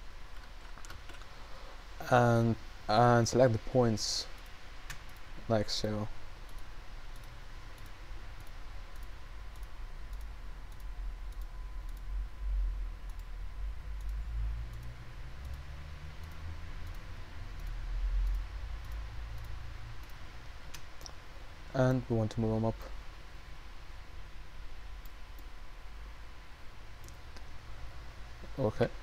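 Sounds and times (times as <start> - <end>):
low electrical hum: 0.0 - 29.0.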